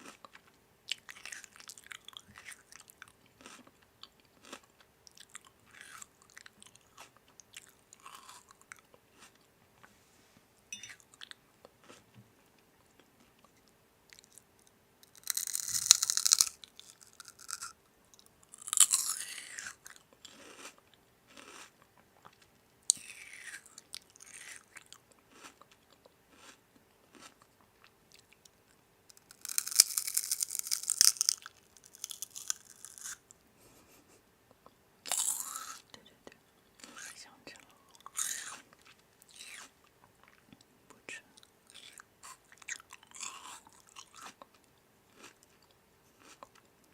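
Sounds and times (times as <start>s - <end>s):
crunchy biting and chewing: 0.0s - 9.4s, 15.0s - 17.8s, 18.5s - 27.5s, 29.1s - 33.2s, 35.1s - 35.8s, 37.9s - 40.4s, 41.7s - 46.7s
faint steady hum: 0.0s - 46.9s.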